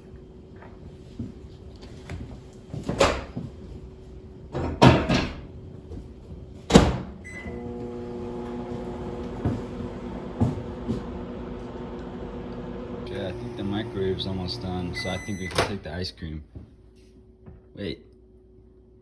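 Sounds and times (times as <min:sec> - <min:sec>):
microwave oven humming: 0:00.0 - 0:15.8
microwave short beep: 0:07.2 - 0:07.6, 0:13.4 - 0:15.7.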